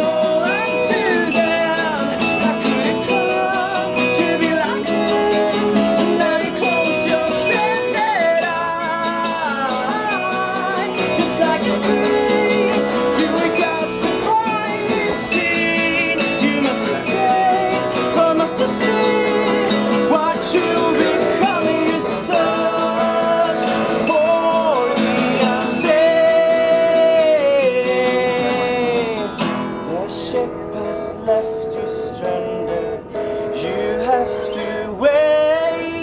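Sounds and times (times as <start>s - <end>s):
live band playing: 0.0s - 29.8s
sliding lead melody: 0.0s - 36.0s.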